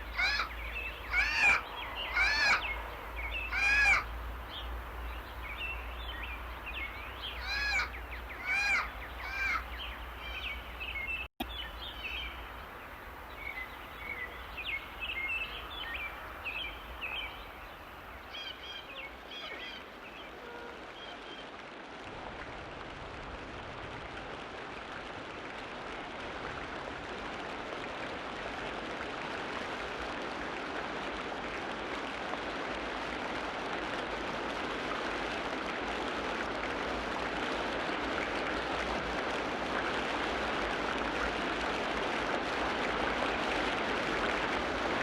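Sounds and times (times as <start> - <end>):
harsh bird calls: 0.0 - 12.3.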